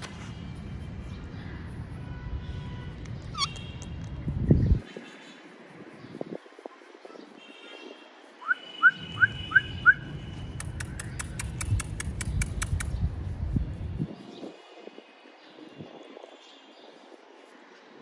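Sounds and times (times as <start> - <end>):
sharp clicks: 10.5 - 13.0.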